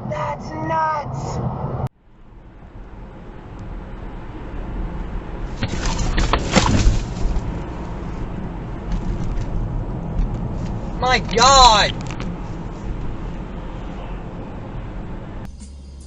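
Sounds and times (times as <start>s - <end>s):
vehicle road noise: 0.0s - 16.0s.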